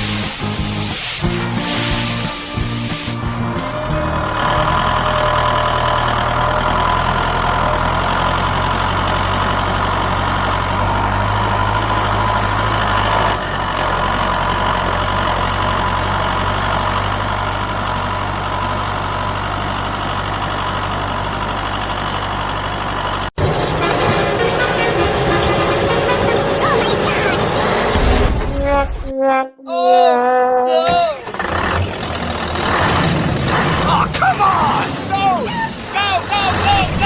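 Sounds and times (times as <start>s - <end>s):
vehicle engine idling: 0.0s - 28.0s.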